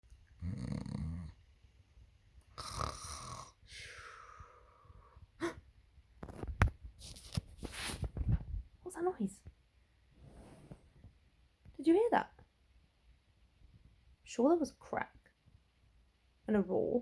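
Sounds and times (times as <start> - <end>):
snoring: 0.3 - 1.4, 2.6 - 4.6.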